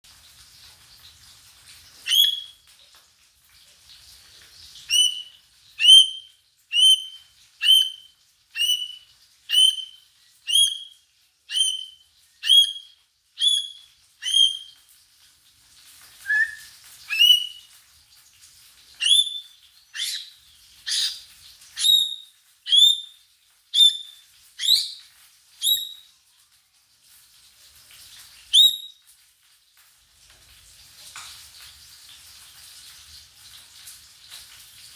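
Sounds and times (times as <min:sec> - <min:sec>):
bird chirping: 0:02.0 - 0:02.6, 0:04.9 - 0:14.8, 0:16.2 - 0:17.7, 0:19.0 - 0:21.2, 0:21.8 - 0:23.2, 0:23.8 - 0:26.1, 0:28.6 - 0:28.9.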